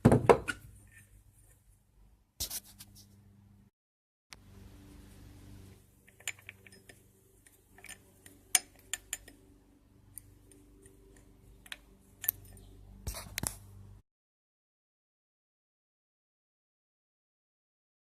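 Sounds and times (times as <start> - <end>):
faint low steady hum: 4.4 - 14.0
metallic clicks of tools and parts: 6.0 - 9.4, 10.1 - 12.7.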